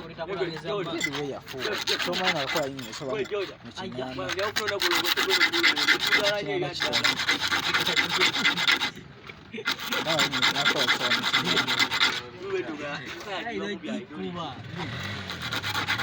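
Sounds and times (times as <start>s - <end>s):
rapid rasping scrape: 0.0s - 16.0s.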